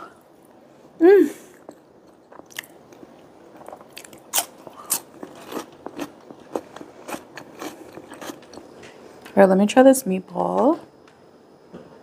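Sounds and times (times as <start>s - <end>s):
person crunching cucumber: 1.6s - 8.7s.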